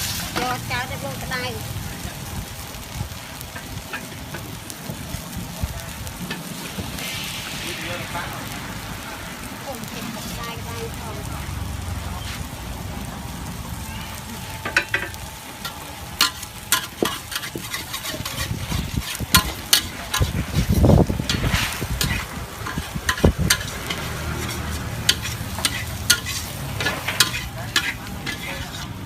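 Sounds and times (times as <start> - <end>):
food sizzling on a pan: 0.0 - 29.0
metal utensil scraping a pan: 14.7 - 29.0.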